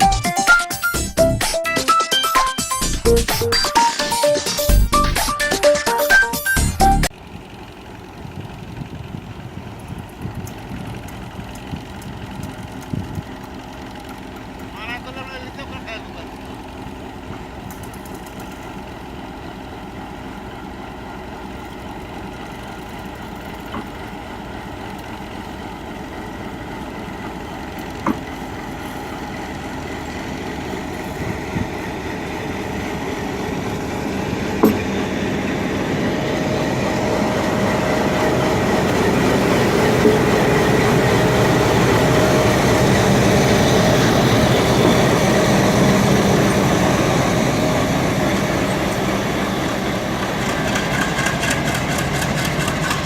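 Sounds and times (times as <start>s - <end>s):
locomotive engine: 0.0s - 53.0s
train coaches rumbling on rails: 2.7s - 53.0s
sharp knocks: 34.6s - 34.9s.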